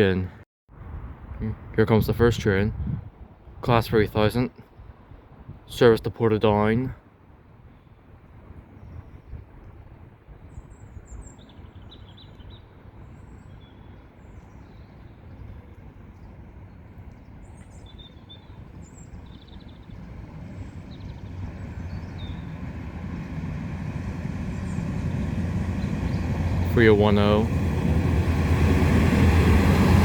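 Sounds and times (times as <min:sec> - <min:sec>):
birds chirping faintly: 0:10.4 - 0:30.0
train approaching rumble: 0:18.5 - 0:30.0.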